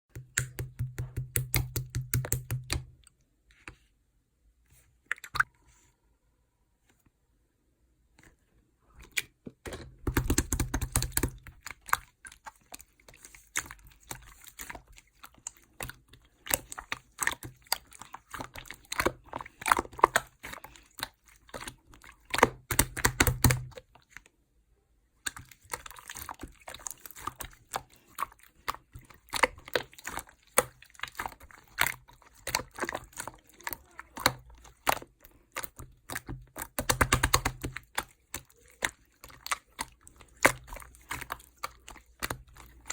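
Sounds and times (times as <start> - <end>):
slime squished by hand: 10.0 - 24.2, 25.2 - 42.9.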